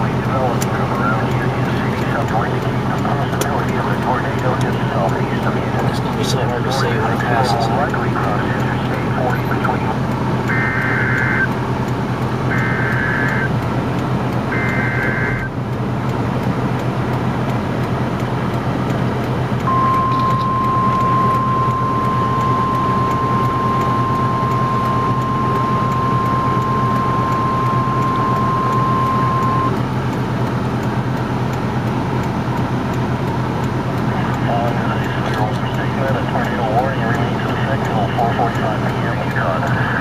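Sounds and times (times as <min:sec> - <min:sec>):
warbling digital data tones: 0:00.0 - 0:11.6, 0:12.5 - 0:13.6, 0:14.5 - 0:15.5, 0:19.7 - 0:29.8
car road noise: 0:00.0 - 0:40.0
high-pitched alert tone: 0:19.7 - 0:29.7.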